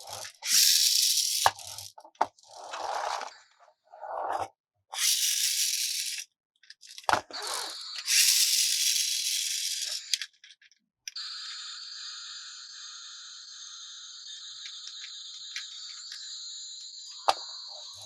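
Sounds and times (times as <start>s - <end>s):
plastic toy rattling: 0.0s - 2.8s, 5.0s - 10.8s.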